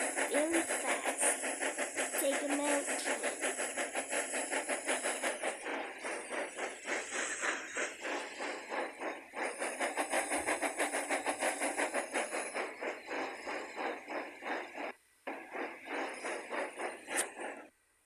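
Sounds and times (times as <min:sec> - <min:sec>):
toy train clattering on track: 0:00.0 - 0:17.7.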